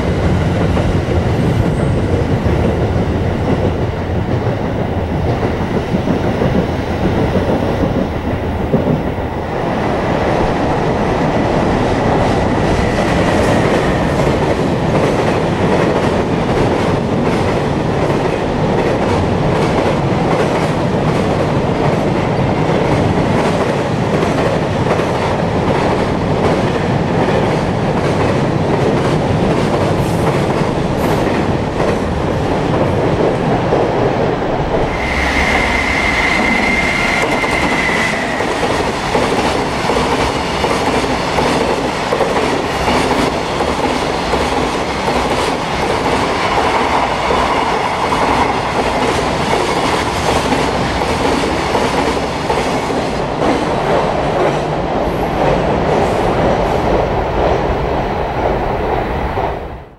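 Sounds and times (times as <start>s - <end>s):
freight train wheels clacking: 0.0s - 57.6s
electric locomotive high tone: 34.7s - 39.0s.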